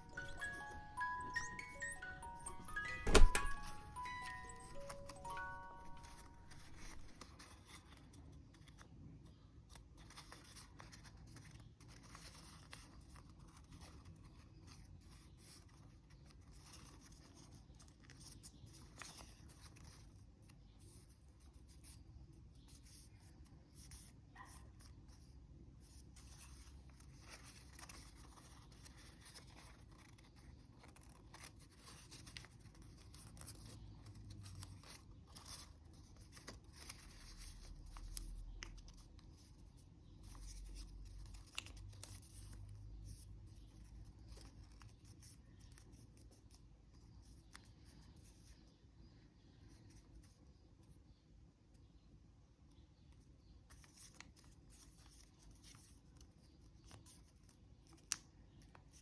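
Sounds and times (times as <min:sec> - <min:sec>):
paper being folded by hand: 0:00.0 - 0:08.9, 0:24.8 - 0:47.6.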